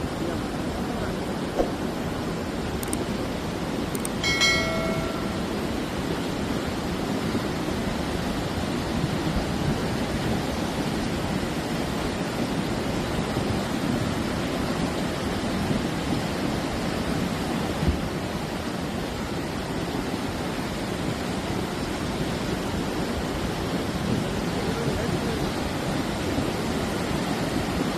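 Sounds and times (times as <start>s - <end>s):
brief thump: 1.6s - 1.8s.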